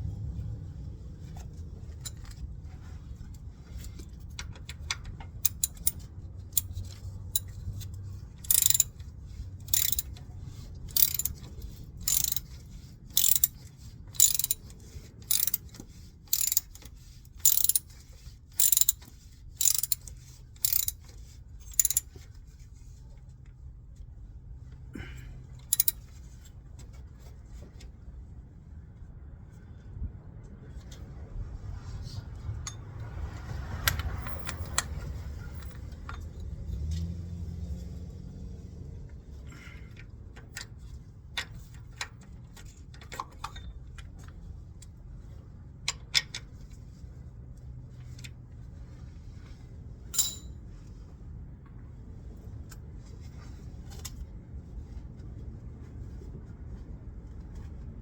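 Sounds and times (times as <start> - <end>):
low steady rumble: 0.0 - 42.9
ratchet wrench ratcheting: 5.4 - 7.6, 8.4 - 10.2, 10.9 - 21.1, 21.7 - 22.2, 25.7 - 26.1.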